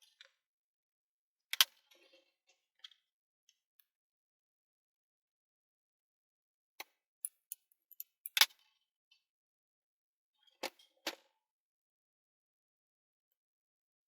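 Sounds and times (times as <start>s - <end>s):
light clicks of parts handled: 7.2s - 8.5s.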